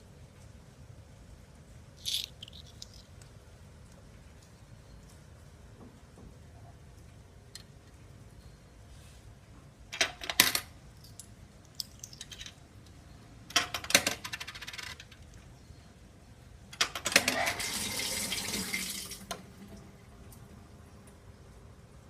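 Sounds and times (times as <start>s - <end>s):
coins clattering through coin slot: 10.0s - 10.7s, 13.5s - 15.2s.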